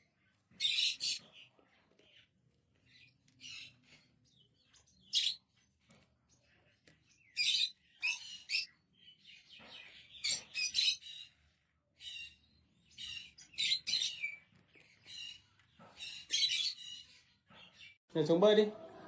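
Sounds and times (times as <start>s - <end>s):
parrot chirping: 0.6s - 1.3s, 7.2s - 8.8s, 10.2s - 11.3s, 13.0s - 14.4s, 15.1s - 17.2s.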